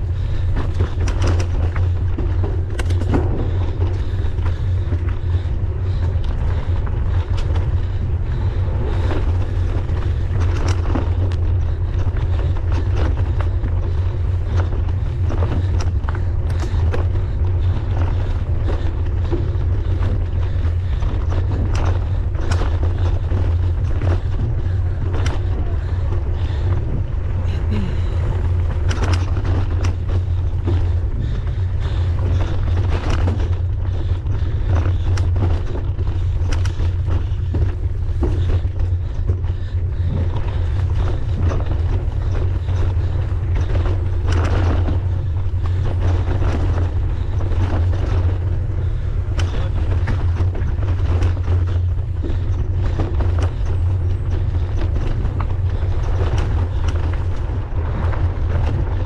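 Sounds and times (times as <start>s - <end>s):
bike rattling on rough ground: 0.0s - 59.0s
wind and motion rumble: 0.0s - 59.0s.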